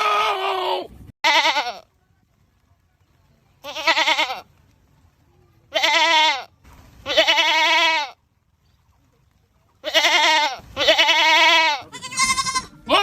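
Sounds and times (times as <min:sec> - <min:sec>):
goat bleating: 0:00.0 - 0:01.9, 0:03.6 - 0:04.5, 0:05.7 - 0:08.2, 0:09.8 - 0:13.0.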